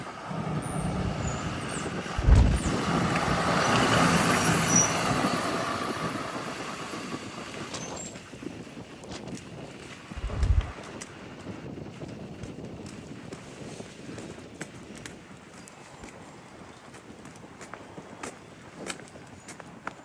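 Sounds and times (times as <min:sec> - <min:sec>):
bus engine running: 0:00.0 - 0:09.0, 0:09.7 - 0:14.0
high brake squeals: 0:00.2 - 0:06.1
loud low thump: 0:00.8 - 0:04.1, 0:10.2 - 0:10.7.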